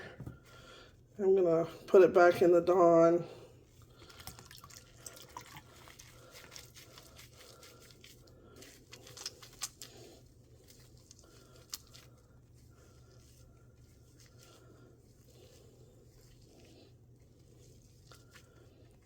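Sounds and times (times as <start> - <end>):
small splashes and drips: 3.9 - 12.2.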